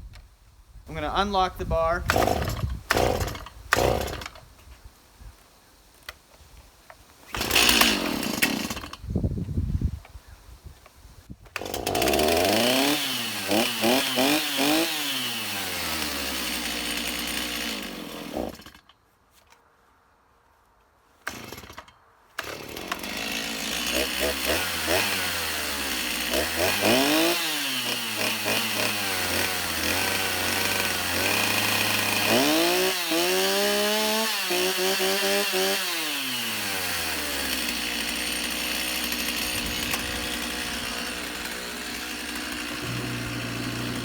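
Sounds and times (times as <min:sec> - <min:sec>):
chainsaw engine revving: 0:02.0 - 0:04.4, 0:07.3 - 0:09.0, 0:11.5 - 0:18.8, 0:21.3 - 0:21.8, 0:22.4 - 0:44.0
chainsaw pull cord starting: 0:02.0 - 0:04.4, 0:07.3 - 0:09.0, 0:11.4 - 0:18.9, 0:21.3 - 0:44.0.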